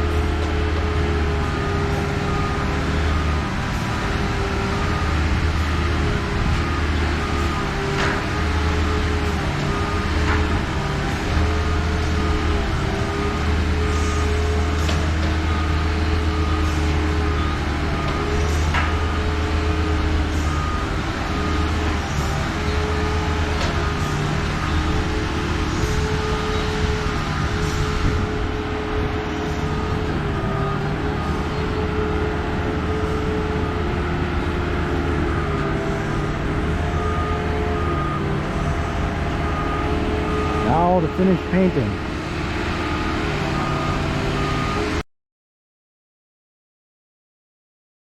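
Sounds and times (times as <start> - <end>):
lift engine running: 0.0 - 45.0
high warning beeps: 38.9 - 42.0.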